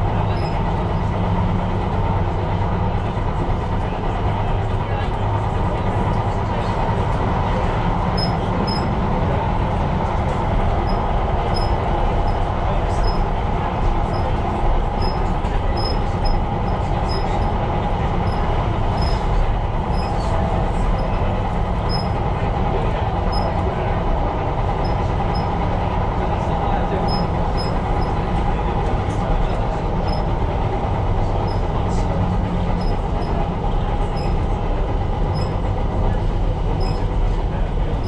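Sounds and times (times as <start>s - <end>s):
train wheels and motors rumbling: 0.0s - 38.0s
high squeaks: 0.3s - 0.6s, 8.2s - 8.9s, 10.8s - 13.3s, 14.0s - 22.2s, 23.3s - 23.6s, 27.0s - 28.2s, 30.0s - 30.3s, 35.3s - 35.6s, 36.8s - 37.1s.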